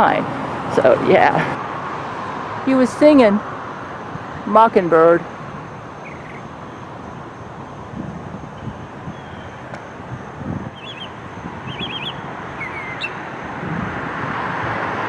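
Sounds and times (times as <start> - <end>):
distant traffic hum: 0.0 - 15.0
songbird chirping: 4.4 - 10.0, 10.6 - 13.4.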